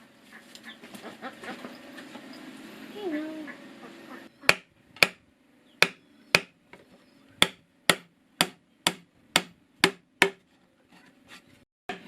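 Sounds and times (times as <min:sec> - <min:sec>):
sharp knocks: 0:04.5 - 0:05.2, 0:05.8 - 0:06.5, 0:07.4 - 0:10.4.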